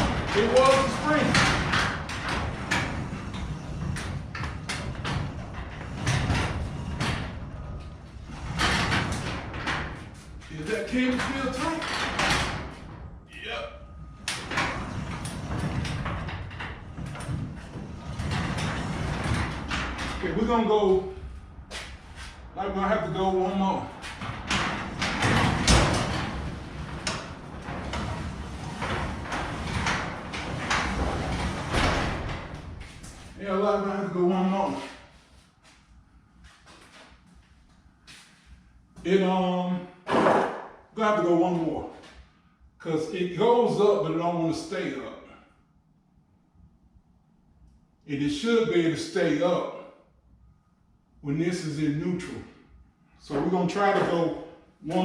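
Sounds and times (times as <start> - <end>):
door panels knocking and rattling: 0.0 - 13.2, 14.2 - 20.5, 23.9 - 33.4
garage door rumbling on tracks: 0.0 - 35.0.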